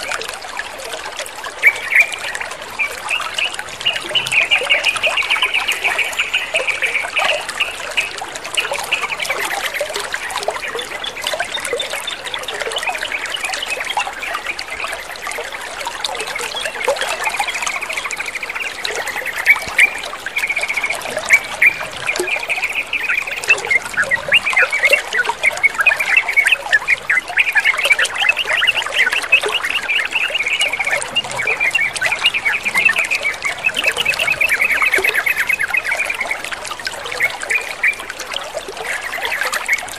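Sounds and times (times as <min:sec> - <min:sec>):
water trickling and splashing: 0:00.0 - 0:39.9
small birds chattering: 0:16.4 - 0:39.9.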